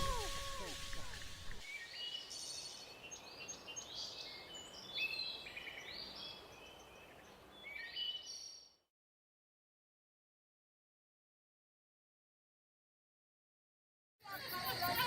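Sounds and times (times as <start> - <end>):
faint birdsong chirps: 0.0 - 8.9.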